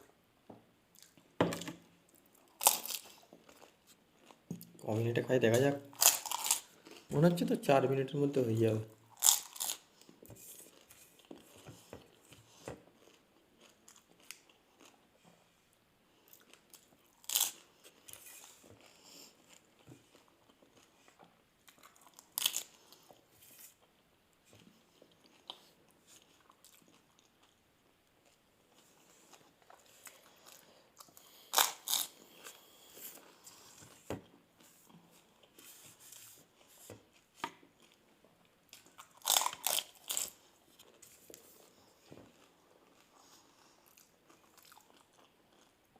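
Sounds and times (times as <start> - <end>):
soft chewing: 0.0 - 1.4, 2.0 - 7.2, 9.0 - 45.9
crisp shells crunching: 5.9 - 6.7.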